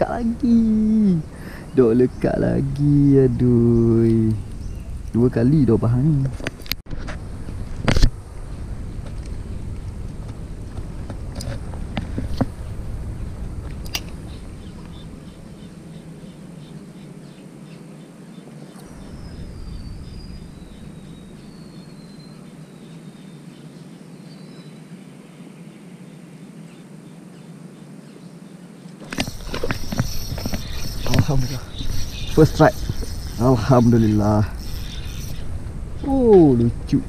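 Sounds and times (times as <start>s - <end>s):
wind rumble on microphone: 0.0s - 17.2s, 18.8s - 22.4s, 29.0s - 37.0s.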